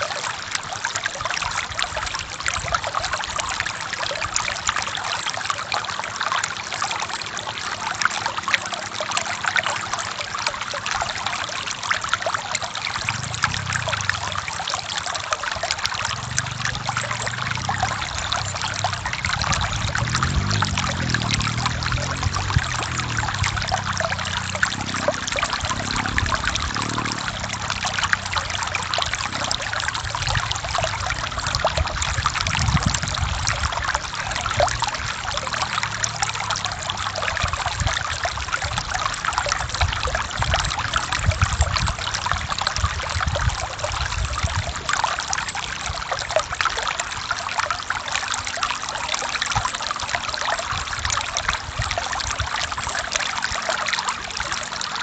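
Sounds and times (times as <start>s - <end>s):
stream flowing over rocks: 0.0s - 55.0s
low rumble: 16.0s - 33.7s.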